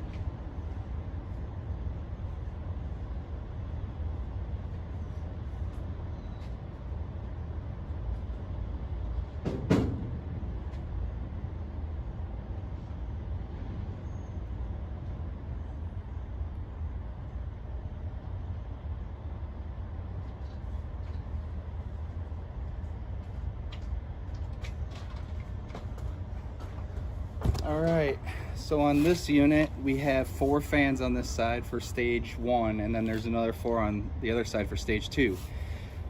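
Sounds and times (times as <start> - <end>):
low rumble of condenser unit: 0.0 - 36.0
loud knock: 9.4 - 10.3.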